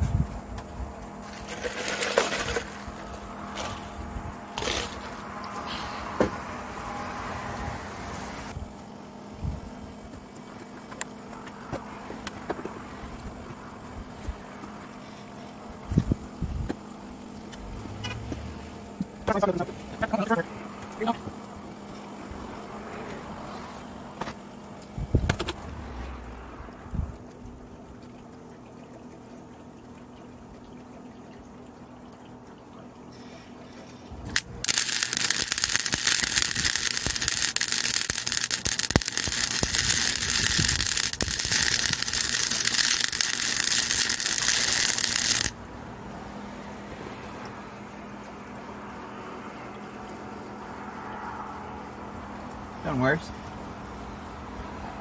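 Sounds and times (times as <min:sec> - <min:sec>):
welder crackling hiss: 0:34.3 - 0:45.6.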